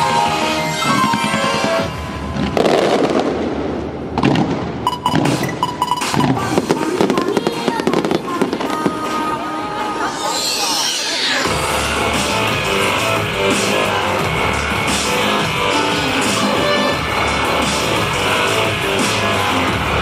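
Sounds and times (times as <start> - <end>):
music over loudspeakers: 0.0 - 3.3, 4.9 - 20.0
fireworks bursting and crackling: 0.0 - 20.0.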